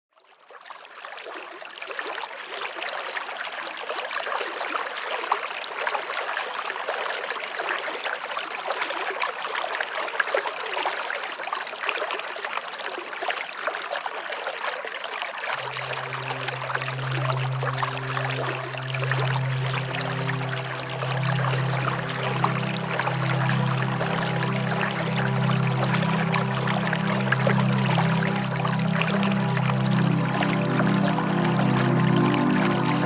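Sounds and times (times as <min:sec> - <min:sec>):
water trickling in a stream: 0:00.1 - 0:33.0
low steady hum: 0:15.6 - 0:33.0.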